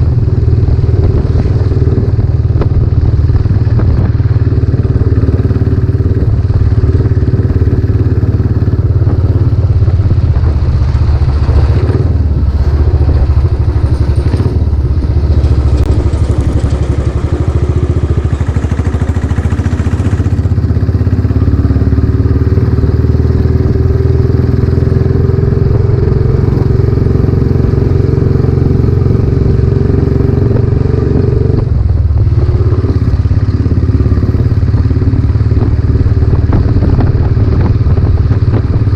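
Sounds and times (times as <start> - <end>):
motorcycle engine thumping: 0.0 - 21.3, 30.2 - 38.9.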